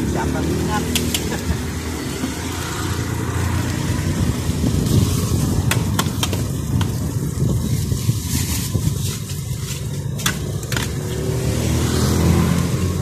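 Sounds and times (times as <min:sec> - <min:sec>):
meat frying on griddle: 0:00.0 - 0:11.0
steady low rumble: 0:02.9 - 0:11.2.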